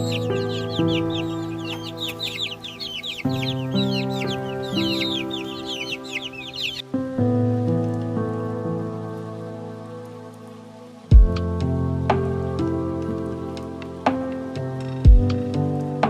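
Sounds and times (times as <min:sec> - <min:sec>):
birds chirping: 0:00.0 - 0:07.3
music of long held chords: 0:00.0 - 0:16.0
rain-like hiss: 0:06.8 - 0:16.0.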